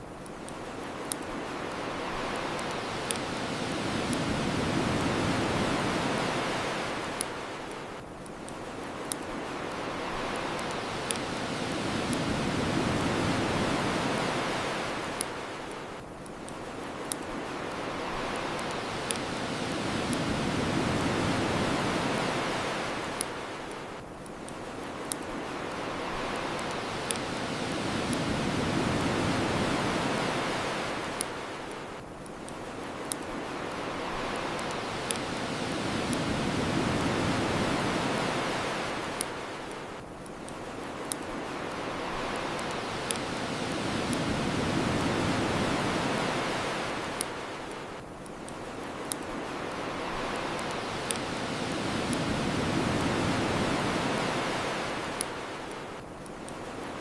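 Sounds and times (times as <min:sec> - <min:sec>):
ocean surf washing: 0:00.0 - 0:57.0
wood fire crackling and popping: 0:00.1 - 0:55.4.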